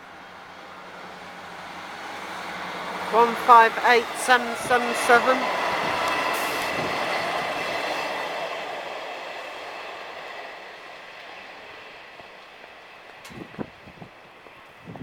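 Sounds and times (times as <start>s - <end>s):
diesel train passing: 0.0s - 15.0s.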